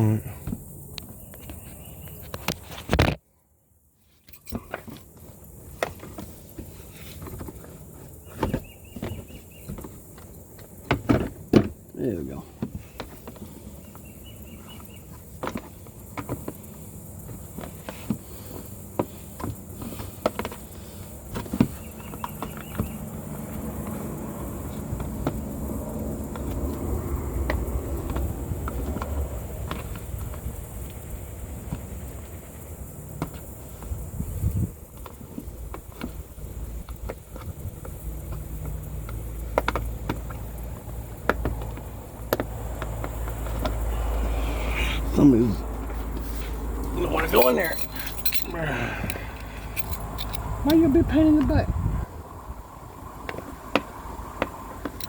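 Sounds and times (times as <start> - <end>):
car parts clicking: 46.0 - 50.8.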